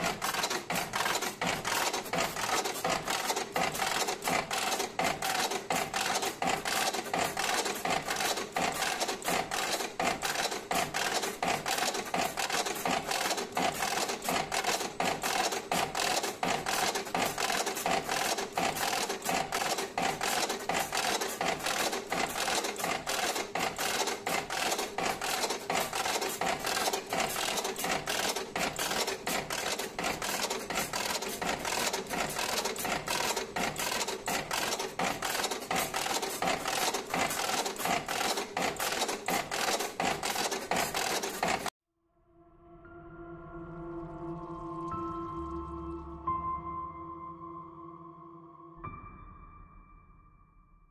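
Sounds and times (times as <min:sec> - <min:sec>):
machine clicking rapidly: 0:00.0 - 0:41.7
steady machine tone: 0:42.1 - 0:49.3.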